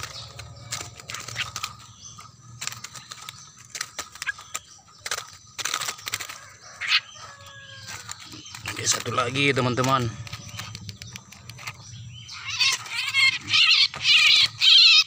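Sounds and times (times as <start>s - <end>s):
sharp clicks and rattles: 0.0s - 6.5s, 7.8s - 14.6s
birds fluttering in a wire cage: 0.0s - 15.0s
short bird calls: 4.1s - 15.0s.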